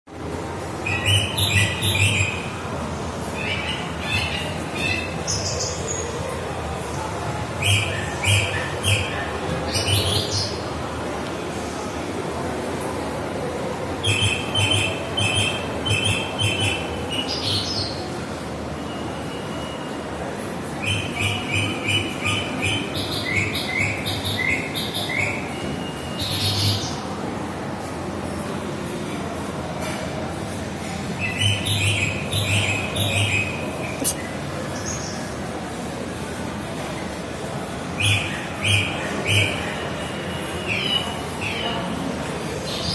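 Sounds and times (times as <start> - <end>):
background hubbub: 0.1 - 42.9
harsh bird calls: 20.8 - 27.1.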